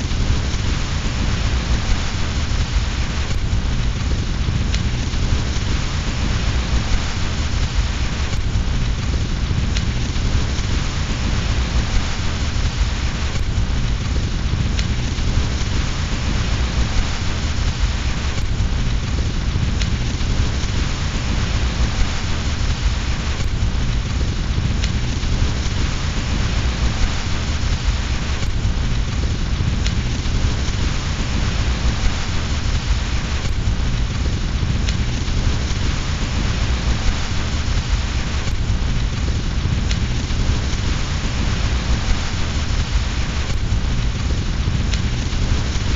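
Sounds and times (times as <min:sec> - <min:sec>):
deep low rumble: 0:00.0 - 0:45.9
fireplace fire crackling: 0:00.0 - 0:45.9
steady rain: 0:00.0 - 0:45.9.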